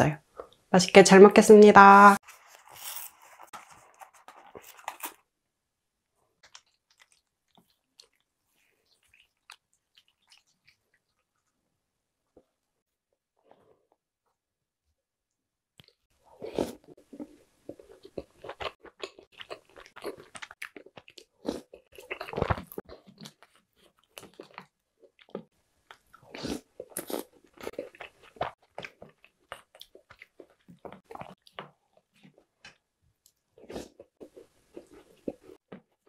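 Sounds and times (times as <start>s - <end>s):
person chewing and crunching: 2.2s - 5.2s, 6.4s - 11.6s, 15.8s - 36.0s.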